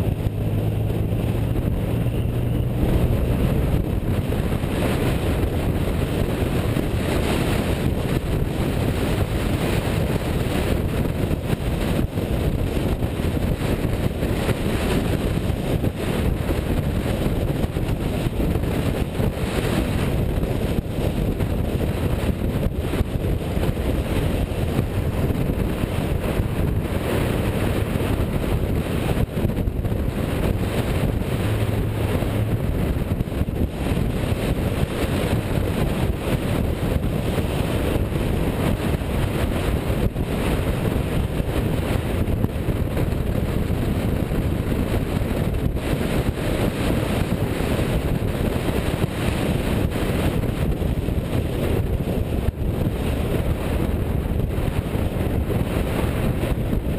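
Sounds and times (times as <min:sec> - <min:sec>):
car engine and road rumble: 0:00.0 - 0:56.9
wind buffeting microphone: 0:00.0 - 0:56.9.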